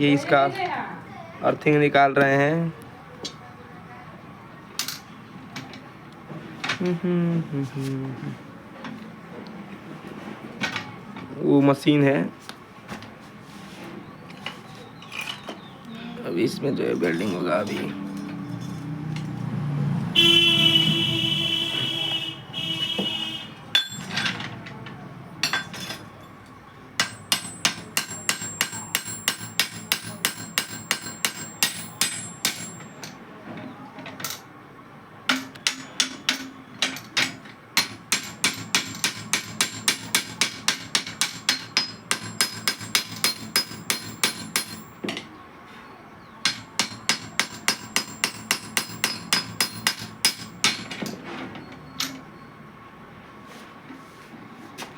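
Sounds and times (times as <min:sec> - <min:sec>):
hammer blows ringing on metal: 0:20.2 - 0:24.1, 0:27.0 - 0:33.1, 0:37.8 - 0:45.1, 0:46.4 - 0:51.0.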